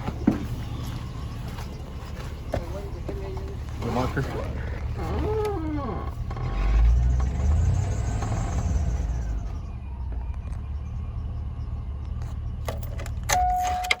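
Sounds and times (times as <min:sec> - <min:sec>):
engine revving and idling: 0:00.0 - 0:13.3.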